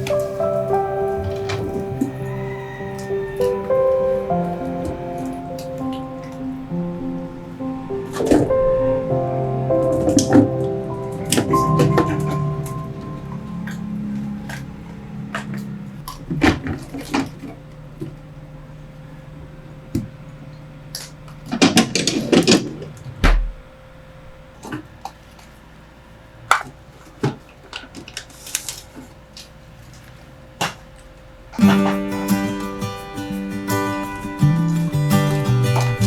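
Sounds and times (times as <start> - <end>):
acoustic guitar music: 0.0 - 23.0, 31.6 - 36.0.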